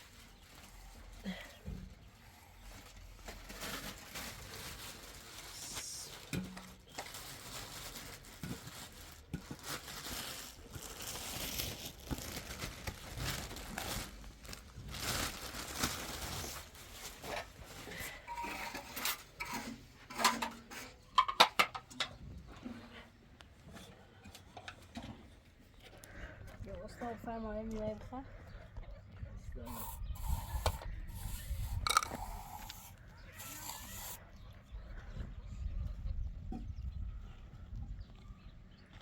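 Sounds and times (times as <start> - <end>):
rustling and crinkling: 0.0 - 35.0.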